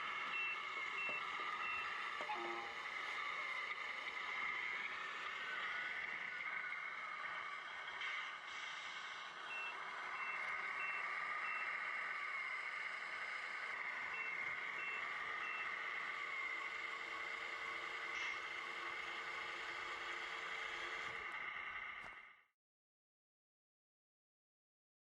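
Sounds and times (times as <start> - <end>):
electronic reversing beeps: 0.0 - 2.9, 9.0 - 16.8
simulated truck engine noise: 0.0 - 22.5.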